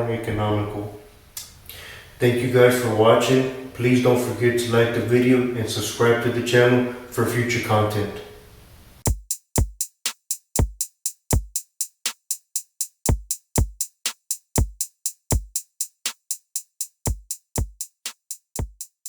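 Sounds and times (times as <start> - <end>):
hi-hat ticks: 9.0 - 19.0
deep kick drums: 9.1 - 9.9, 10.6 - 11.6, 13.1 - 13.9, 14.6 - 15.6, 17.0 - 17.9, 18.6 - 18.9.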